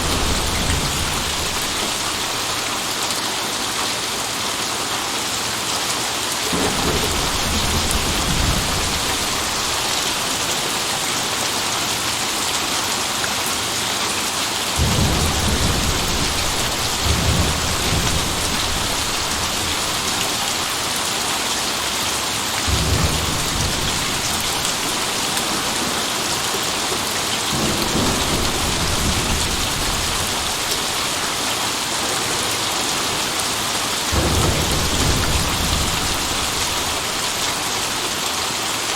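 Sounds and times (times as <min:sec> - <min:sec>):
thunder rumbling: 0:00.0 - 0:03.0, 0:06.5 - 0:11.1, 0:14.8 - 0:21.0, 0:22.6 - 0:38.0
heavy rain: 0:00.0 - 0:38.9.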